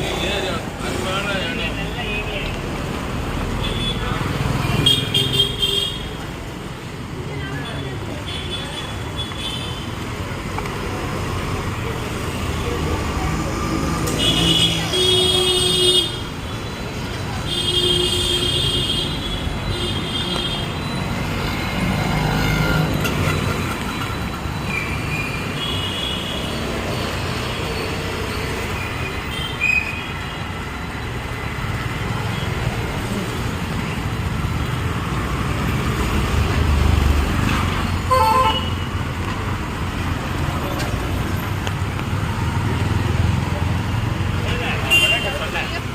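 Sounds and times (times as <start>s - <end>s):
street traffic engines: 0.0s - 45.9s
vehicle horns honking: 38.1s - 38.9s, 44.8s - 45.5s.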